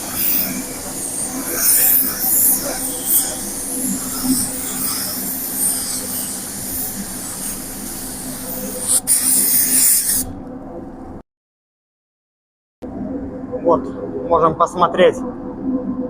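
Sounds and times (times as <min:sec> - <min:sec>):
paint spray gun hissing: 0:00.0 - 0:10.3
steady low hum: 0:00.0 - 0:11.2.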